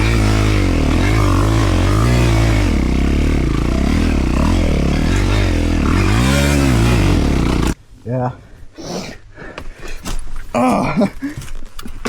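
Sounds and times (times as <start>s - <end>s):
dirt bike engine revving: 0.0s - 7.8s.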